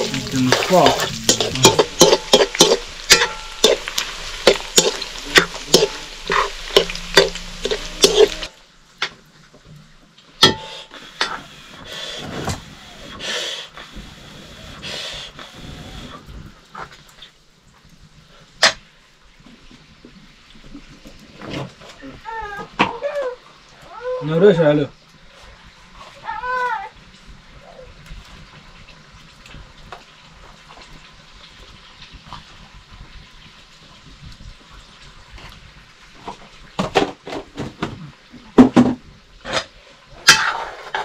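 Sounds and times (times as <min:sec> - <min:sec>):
metal ladle scraping a wok: 0:00.0 - 0:08.6, 0:40.2 - 0:41.0
meat frying in a wok: 0:00.0 - 0:12.4, 0:13.1 - 0:41.0
metal clank: 0:01.3 - 0:08.5, 0:10.4 - 0:10.9.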